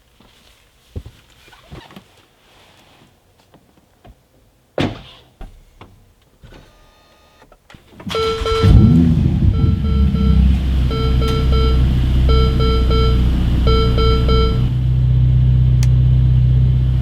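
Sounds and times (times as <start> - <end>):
car door shutting: 8.0 - 9.1, 9.9 - 14.8.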